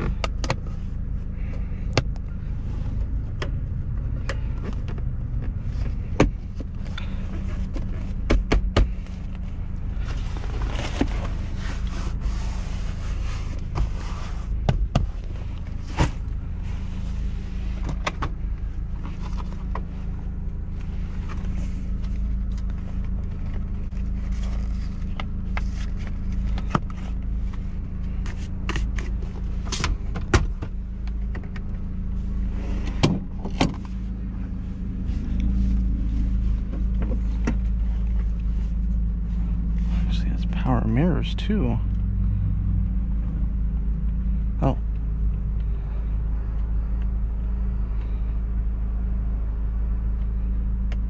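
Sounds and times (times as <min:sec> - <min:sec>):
clicks and knocks inside car: 0:00.0 - 0:00.8, 0:01.5 - 0:02.3, 0:02.9 - 0:11.5, 0:13.4 - 0:16.4, 0:17.7 - 0:20.0, 0:25.0 - 0:31.8, 0:32.7 - 0:34.0, 0:36.2 - 0:39.0
car engine idling: 0:00.0 - 0:51.0.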